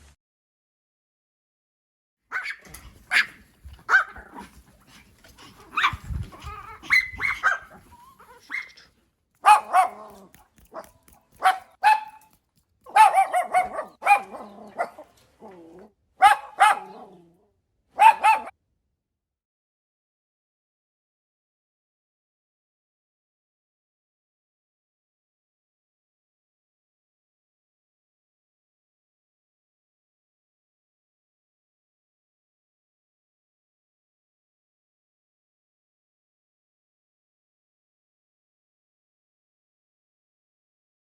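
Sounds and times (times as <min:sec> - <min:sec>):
dog barking: 0:02.3 - 0:04.5, 0:05.7 - 0:15.2, 0:16.2 - 0:17.3, 0:18.0 - 0:18.5.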